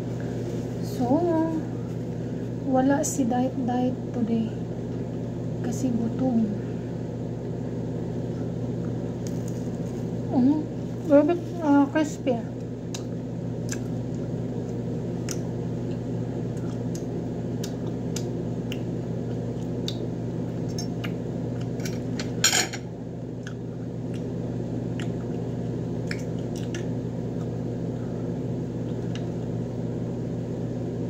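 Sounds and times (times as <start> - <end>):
steady low hum: 0.0 - 31.0
chewing crispy chicken: 8.8 - 10.2, 12.7 - 21.8, 23.3 - 28.0.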